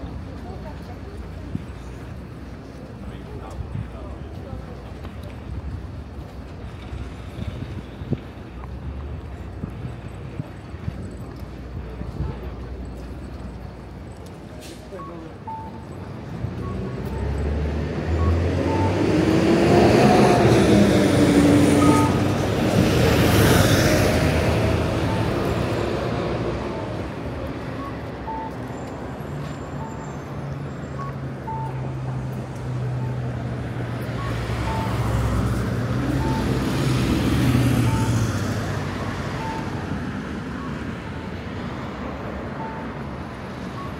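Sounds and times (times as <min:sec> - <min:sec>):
vehicles passing: 0:00.0 - 0:43.9
short beeps: 0:14.9 - 0:17.5, 0:18.1 - 0:19.2, 0:21.8 - 0:22.3, 0:25.0 - 0:25.6, 0:27.7 - 0:28.8, 0:30.9 - 0:31.9, 0:32.9 - 0:33.3, 0:34.2 - 0:35.2, 0:36.1 - 0:36.6, 0:37.8 - 0:38.3, 0:39.0 - 0:39.9, 0:42.5 - 0:43.1, 0:43.7 - 0:43.9.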